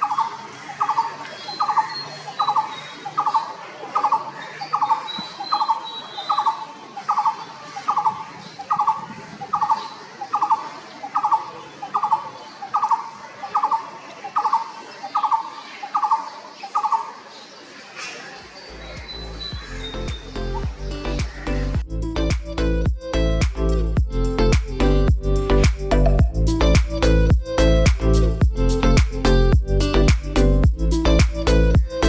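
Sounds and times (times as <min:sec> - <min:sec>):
barbet trilled call: 0:00.0 - 0:08.1
high thin bird chirps: 0:00.0 - 0:17.2, 0:18.5 - 0:21.6.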